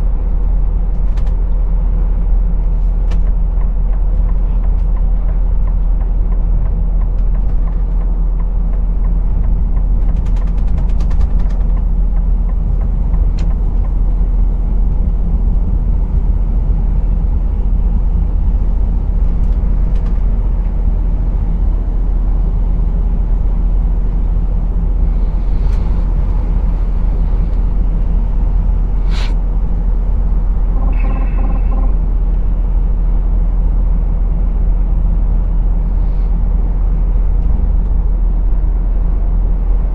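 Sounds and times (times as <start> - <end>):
lorry engine rumble: 0.0 - 39.9
short pulsing tone: 29.0 - 29.4, 30.7 - 32.1.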